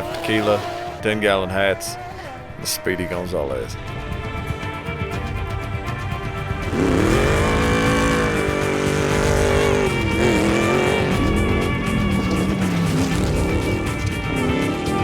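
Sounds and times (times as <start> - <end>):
vehicle engine revving: 0.0 - 3.1, 6.5 - 15.0
background music: 0.0 - 15.0.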